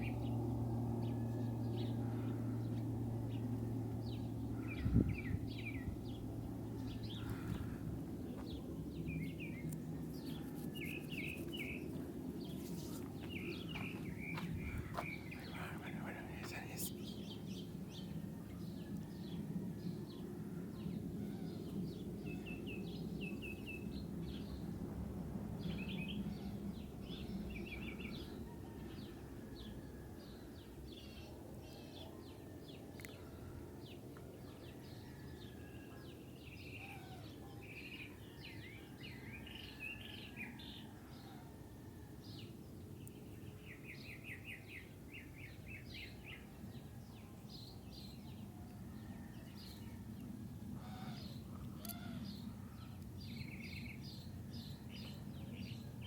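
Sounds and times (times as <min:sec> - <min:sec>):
low steady rumble: 0:00.0 - 0:31.7
small birds chirping: 0:01.6 - 0:19.4, 0:42.4 - 0:56.0.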